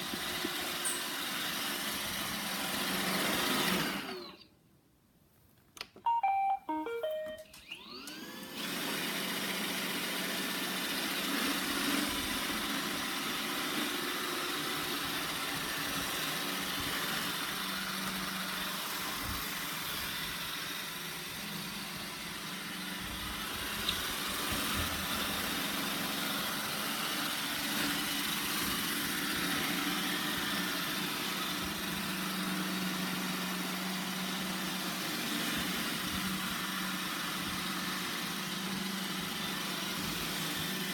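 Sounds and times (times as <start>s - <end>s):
short beeps: 6.0s - 7.8s
robot vacuum motor whine and hum: 7.6s - 40.9s.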